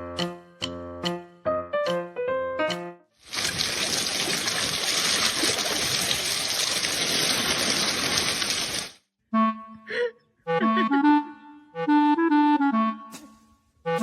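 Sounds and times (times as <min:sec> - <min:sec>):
running water hissing: 0:03.2 - 0:09.0.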